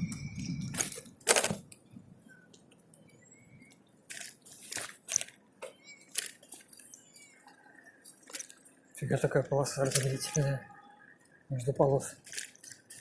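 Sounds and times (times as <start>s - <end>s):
sharp clicks and rustles: 0.1s - 7.3s.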